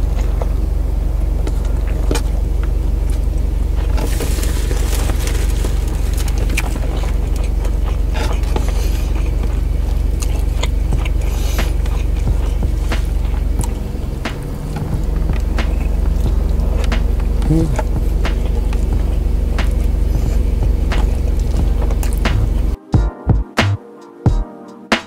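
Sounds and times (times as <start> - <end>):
car engine idling: 0.0 - 22.8.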